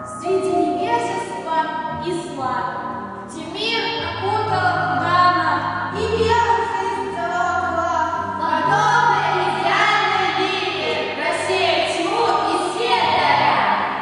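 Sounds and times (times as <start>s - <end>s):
musical accompaniment with bass: 0.0s - 14.0s
voices singing: 6.0s - 14.0s.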